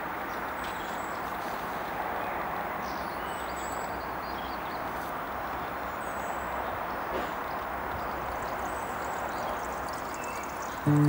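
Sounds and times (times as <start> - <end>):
small birds chirping: 7.5 - 11.0.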